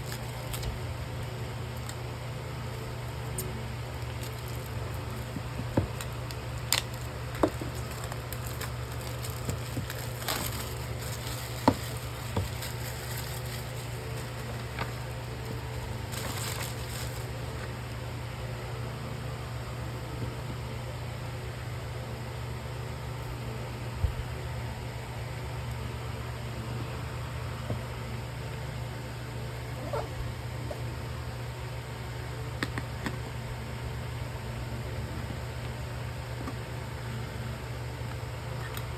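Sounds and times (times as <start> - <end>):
packaging rustle: 0.0 - 0.9, 2.7 - 17.8
steady low hum: 0.0 - 38.9.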